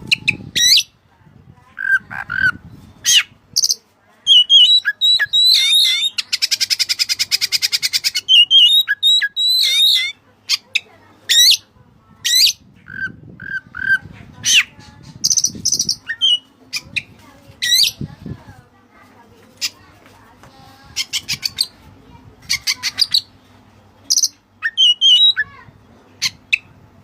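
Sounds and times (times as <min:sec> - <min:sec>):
songbird singing whistled phrases: 0:00.1 - 0:00.9, 0:01.8 - 0:10.6, 0:12.3 - 0:18.0, 0:24.1 - 0:25.5.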